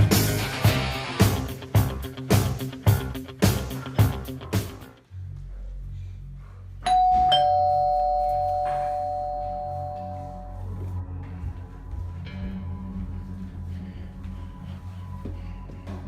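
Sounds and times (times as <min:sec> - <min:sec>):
quiet background music: 0:00.2 - 0:16.0
two-note doorbell chime: 0:06.8 - 0:10.8.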